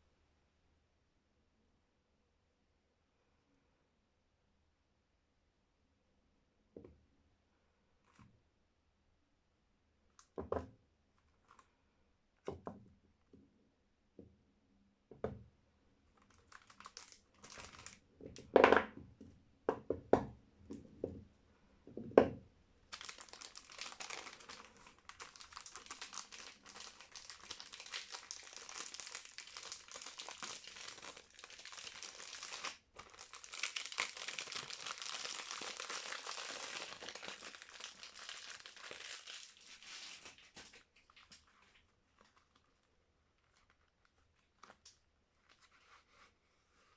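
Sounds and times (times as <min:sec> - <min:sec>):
soap wrapper crinkling: 0:16.1 - 0:18.0, 0:22.9 - 0:45.7.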